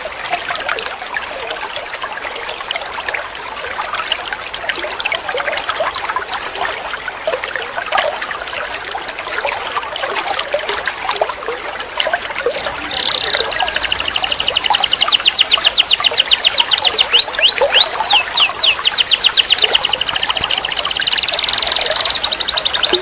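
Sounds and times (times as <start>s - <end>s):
canaries chirping and twittering: 12.6s - 23.0s.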